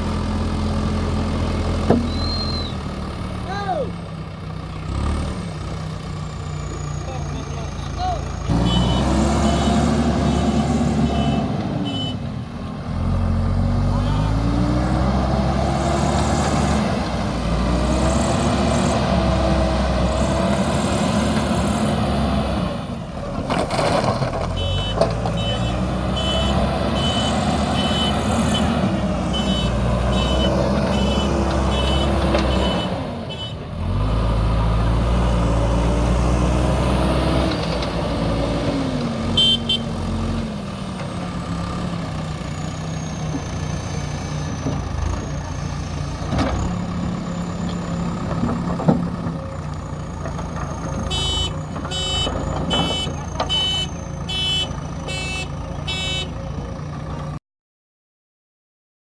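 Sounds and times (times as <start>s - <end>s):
diesel engine under load: 0.0s - 57.4s
reversing alarm beeping: 24.6s - 33.5s, 51.1s - 56.4s.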